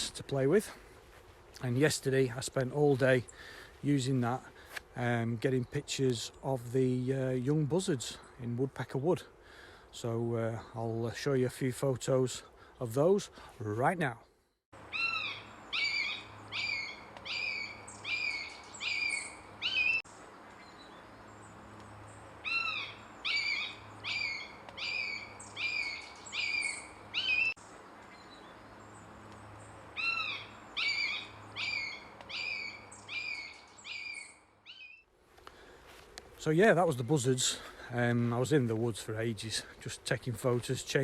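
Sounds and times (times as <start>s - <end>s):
young buzzards calling: 22.4s - 27.6s, 29.9s - 34.3s.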